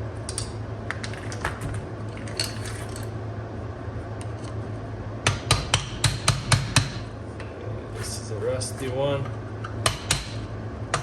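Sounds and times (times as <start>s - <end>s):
steady low hum: 0.0s - 11.0s
small metal parts clinking: 2.1s - 3.1s.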